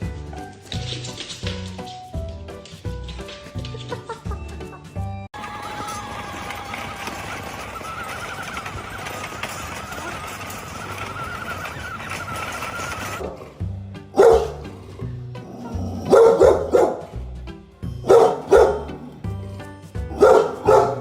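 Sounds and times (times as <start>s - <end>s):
background music with bass: 13.2s - 21.0s
dog barking loudly: 14.2s - 14.7s, 16.0s - 17.1s, 18.1s - 19.0s, 20.1s - 21.0s.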